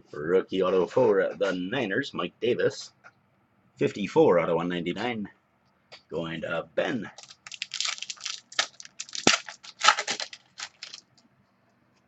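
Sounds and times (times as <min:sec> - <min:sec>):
wrapper crinkling and tearing: 0:07.2 - 0:11.2.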